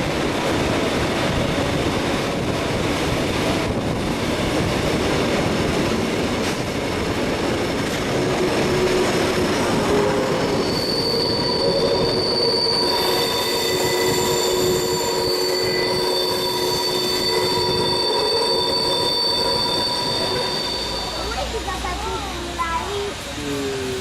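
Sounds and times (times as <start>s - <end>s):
train rumbling: 0.0s - 24.0s
train wheels squealing on rails: 7.4s - 24.0s.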